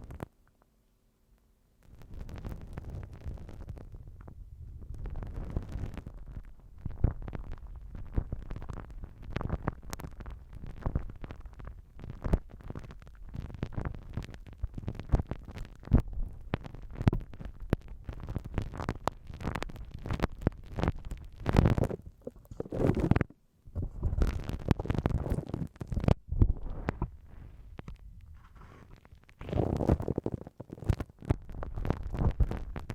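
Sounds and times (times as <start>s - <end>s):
slime squelching: 21.6s - 23.4s.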